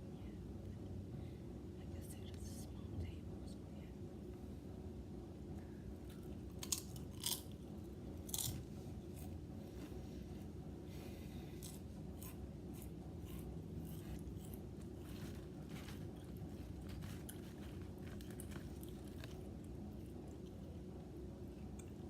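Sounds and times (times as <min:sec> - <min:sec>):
low background hum: 0:00.0 - 0:22.0
potato chips being chewed: 0:06.0 - 0:09.4, 0:11.5 - 0:22.0.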